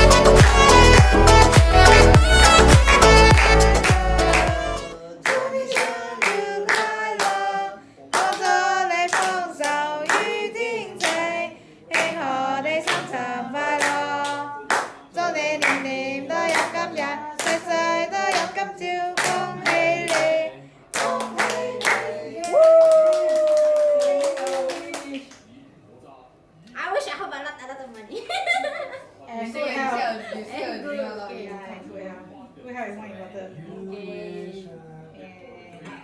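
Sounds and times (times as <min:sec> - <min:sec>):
people clapping: 0:00.0 - 0:07.5, 0:08.2 - 0:10.4, 0:11.0 - 0:11.3, 0:11.9 - 0:13.2, 0:13.8 - 0:20.4, 0:21.0 - 0:25.5
group singing: 0:00.0 - 0:23.0.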